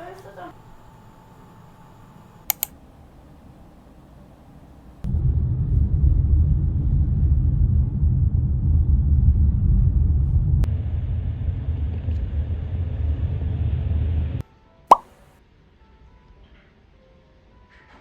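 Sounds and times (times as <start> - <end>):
click: 2.4 - 2.8
vehicle rumbling: 4.2 - 14.4.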